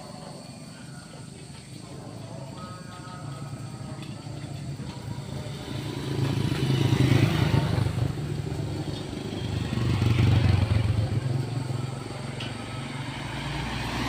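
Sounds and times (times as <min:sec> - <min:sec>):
vehicle engine running: 0:03.6 - 0:14.0.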